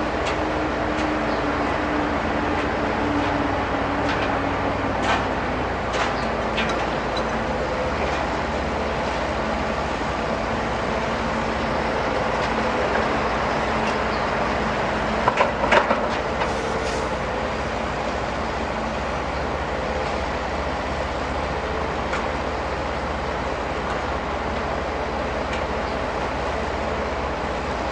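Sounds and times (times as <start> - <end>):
diesel machinery humming: 0.0 - 27.9.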